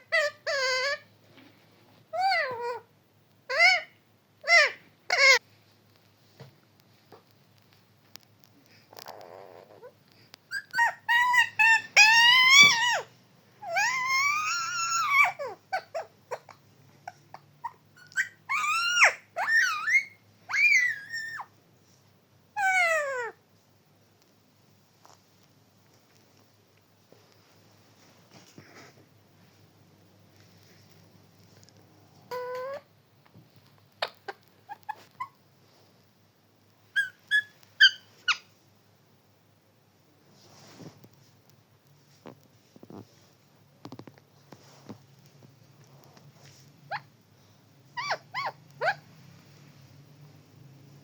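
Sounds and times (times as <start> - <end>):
parrot calling: 0.0 - 1.0, 3.5 - 5.4, 10.5 - 21.5, 22.6 - 23.4, 32.3 - 32.9, 36.9 - 38.5, 47.9 - 49.1
parrot chirps: 0.0 - 1.0, 3.5 - 5.4, 10.5 - 21.5, 36.9 - 38.5, 47.9 - 49.1.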